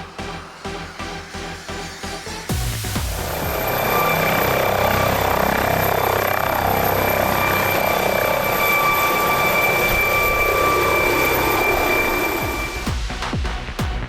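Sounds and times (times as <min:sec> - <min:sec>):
aircraft engine running: 0:02.5 - 0:12.9
high-pitched engine whine: 0:02.5 - 0:12.9.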